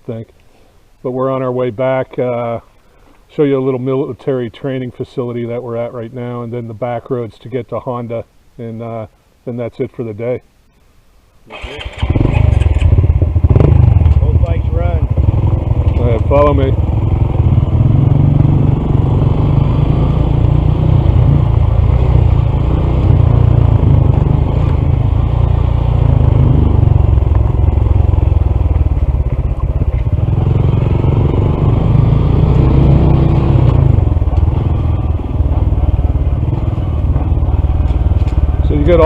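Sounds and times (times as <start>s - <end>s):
motorcycle engine running: 11.9s - 39.0s.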